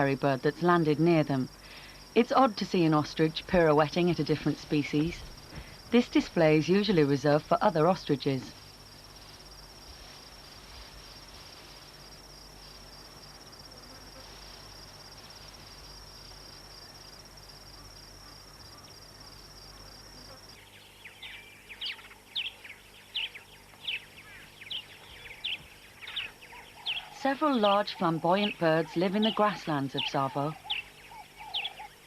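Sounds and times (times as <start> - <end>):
high-pitched insect trill: 6.7 - 32.0.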